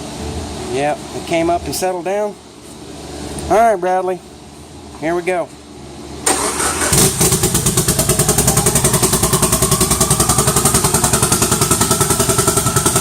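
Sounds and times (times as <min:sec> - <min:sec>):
starter motor cranking: 0:06.3 - 0:13.0
car engine choppy idle: 0:06.9 - 0:13.0.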